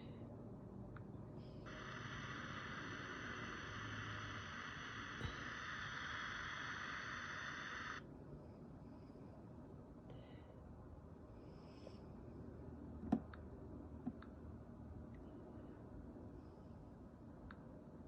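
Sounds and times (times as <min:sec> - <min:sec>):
static hiss from detector speaker: 0:01.6 - 0:08.0.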